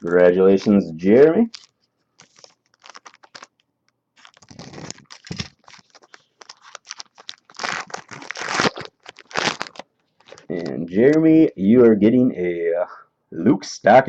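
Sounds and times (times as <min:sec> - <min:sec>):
cards being handled: 0:00.0 - 0:03.6, 0:04.2 - 0:11.2
wrapper crinkling and tearing: 0:00.0 - 0:03.6, 0:04.2 - 0:10.7.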